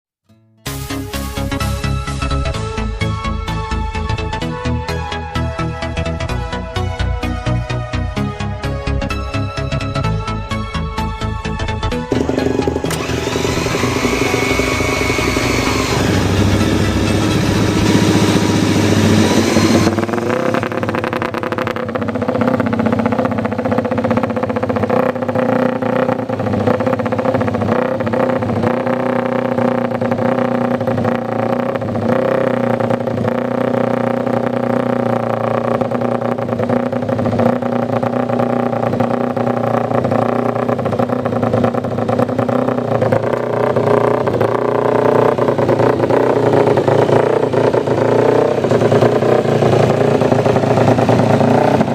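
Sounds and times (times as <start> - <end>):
motorcycle engine idling: 10.8 - 51.9.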